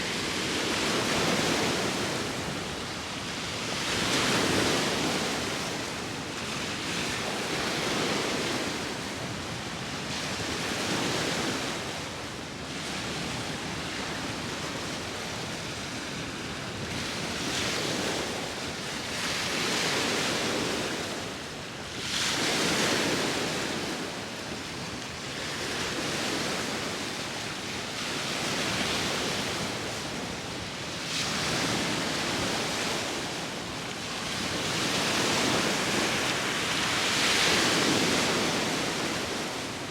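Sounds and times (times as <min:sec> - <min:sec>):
sea waves breaking: 0:28.2 - 0:39.9.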